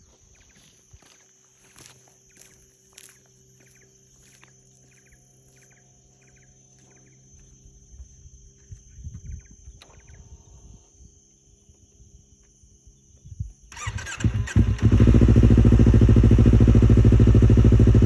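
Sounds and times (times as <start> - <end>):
small animal chirping trills: 0.0 - 11.0.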